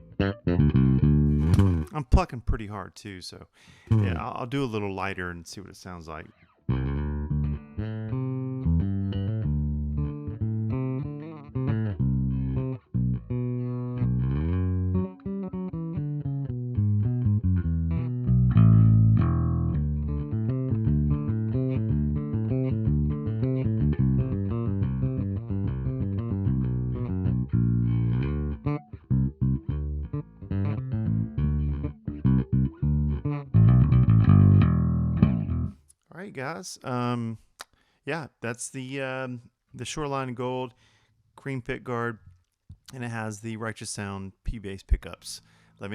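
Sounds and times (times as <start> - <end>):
electric bass plucked notes: 0.0 - 2.0, 3.9 - 4.4, 6.7 - 35.8.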